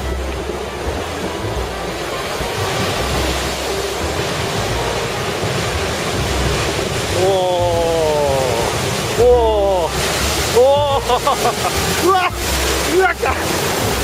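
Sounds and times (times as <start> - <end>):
heavy surf breaking: 0.0 - 14.0
wind buffeting microphone: 0.0 - 14.0
person exclaiming: 7.2 - 9.9, 10.5 - 11.4.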